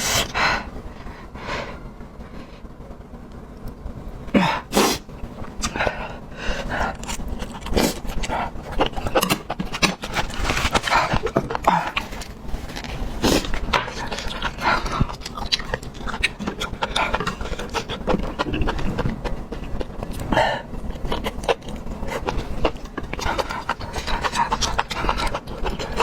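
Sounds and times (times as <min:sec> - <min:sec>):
person chewing: 0:06.8 - 0:26.0.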